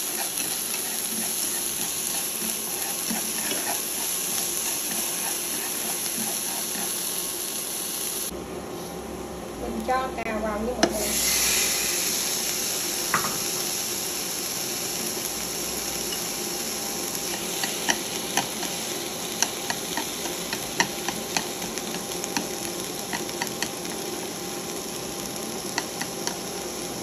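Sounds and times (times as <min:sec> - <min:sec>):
vegetables sizzling in frying pan: 0:00.0 - 0:08.3, 0:10.7 - 0:27.0
chopsticks clicking against pan: 0:23.1 - 0:23.8, 0:25.7 - 0:26.4.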